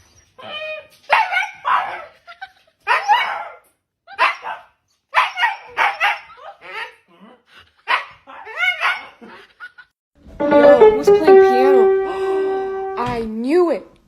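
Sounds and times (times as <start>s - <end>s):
dog barking: 1.1s - 2.2s, 2.9s - 6.9s, 7.8s - 9.2s.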